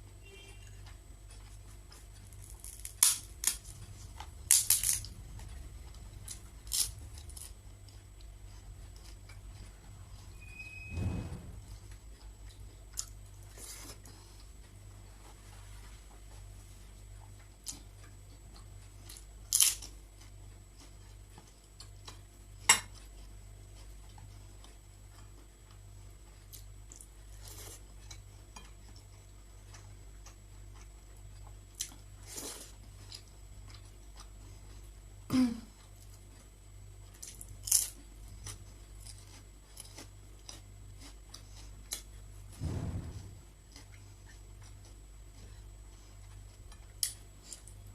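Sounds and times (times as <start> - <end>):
steady low hum: 0.0 - 47.9
soft chewing: 0.2 - 10.4, 11.8 - 42.6, 43.6 - 47.9
sharp clicks and crunches: 1.3 - 5.2, 6.2 - 7.6, 19.1 - 19.9.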